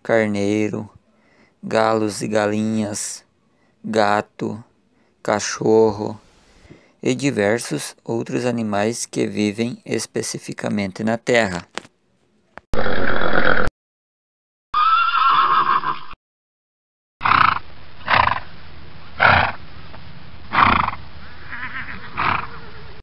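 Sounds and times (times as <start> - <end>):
steady background hiss: 0.0 - 11.6
horse whinnying: 14.8 - 16.2, 20.6 - 22.8.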